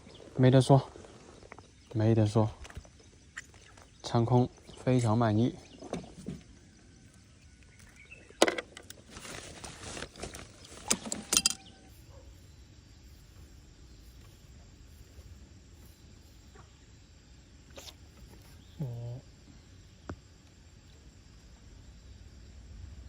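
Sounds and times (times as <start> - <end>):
handling clicks and rattle: 8.4 - 11.8.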